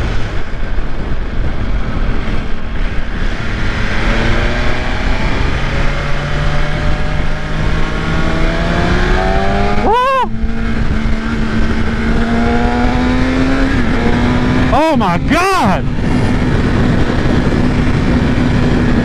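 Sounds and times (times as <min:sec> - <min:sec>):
rushing road noise: 0:04.2 - 0:10.2
motorcycle engine accelerating: 0:06.0 - 0:09.8.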